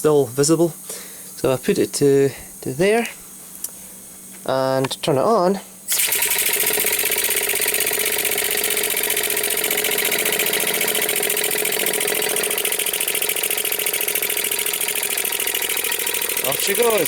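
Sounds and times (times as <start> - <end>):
pulsing hiss of exhaust air: 0.0 - 4.7, 5.5 - 17.0
engine mechanical clatter: 5.9 - 17.0.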